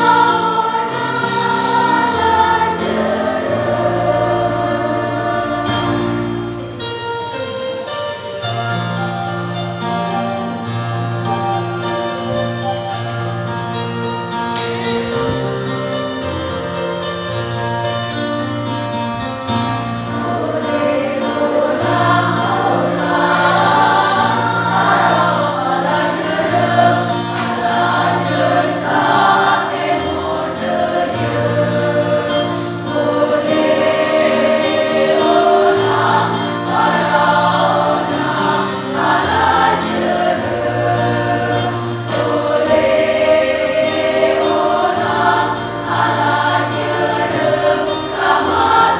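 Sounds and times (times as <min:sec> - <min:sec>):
choir singing in parts: 0:00.0 - 0:07.1, 0:19.2 - 0:48.9
low held accompaniment notes: 0:00.0 - 0:48.9.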